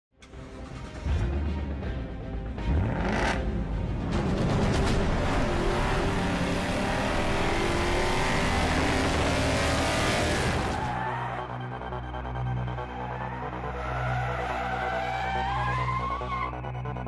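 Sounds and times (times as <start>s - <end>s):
music: 0.1s - 17.0s
car engine revving: 2.5s - 10.9s.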